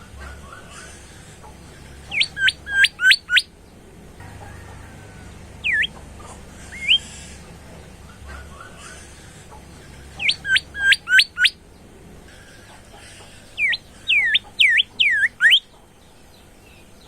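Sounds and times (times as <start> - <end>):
faint twittering: 2.0 - 3.5, 4.9 - 8.0, 9.8 - 11.6, 12.3 - 15.8
bird singing whistled notes: 2.1 - 3.5, 5.6 - 6.0, 6.8 - 7.1, 10.2 - 11.6, 13.6 - 15.7.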